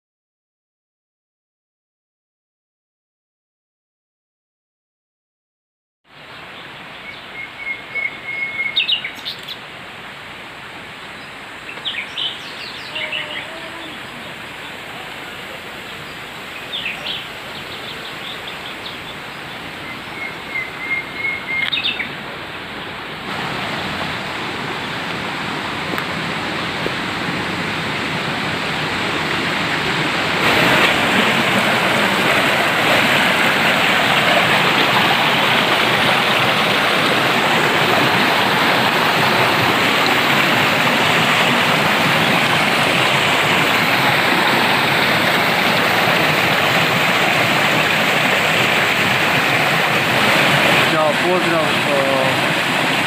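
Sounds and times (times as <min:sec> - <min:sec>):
small birds chirping: 0:06.4 - 0:09.6, 0:11.0 - 0:23.0
waterfall rushing: 0:06.5 - 0:53.0.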